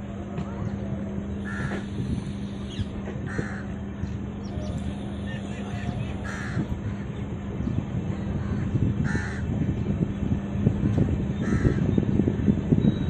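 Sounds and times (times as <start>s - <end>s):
train wheels rumbling and knocking: 0.2s - 2.2s.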